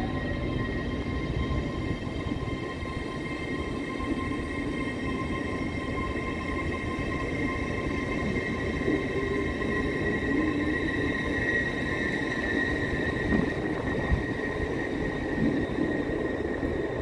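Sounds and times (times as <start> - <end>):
high-pitched whine: 0.0 - 17.0
train low rumble: 0.0 - 17.0.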